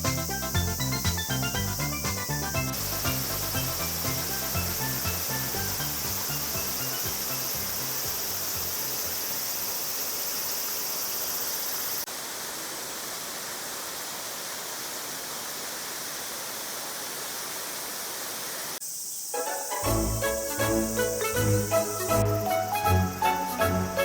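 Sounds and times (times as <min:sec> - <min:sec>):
insects buzzing: 0:00.0 - 0:24.0
flowing water rushing: 0:00.8 - 0:18.8.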